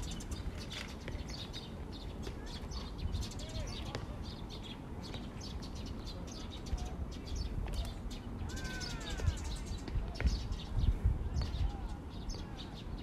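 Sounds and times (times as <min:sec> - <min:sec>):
small birds chirping: 0:00.0 - 0:13.0
wavering bird call: 0:08.4 - 0:09.7.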